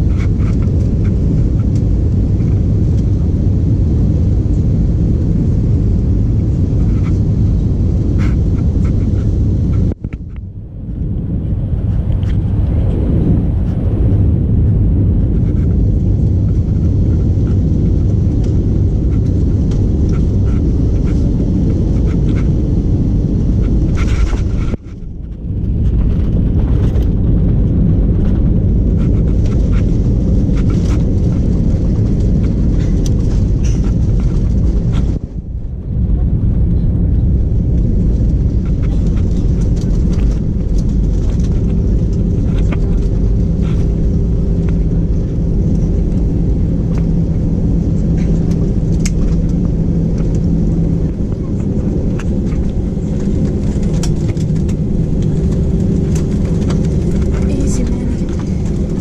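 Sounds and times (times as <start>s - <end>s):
airplane cabin rumble: 0.0s - 59.0s.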